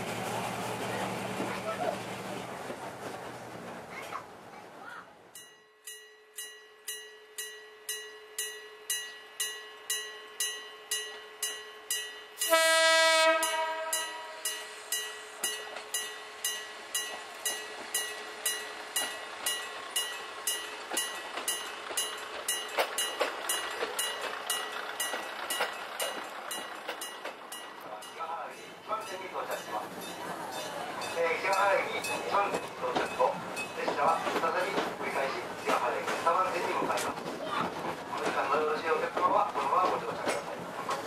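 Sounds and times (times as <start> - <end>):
railcars rumbling past: 0.0 - 5.5, 8.9 - 41.0
level crossing warning bell: 5.4 - 34.0
train horn blast: 12.4 - 14.5.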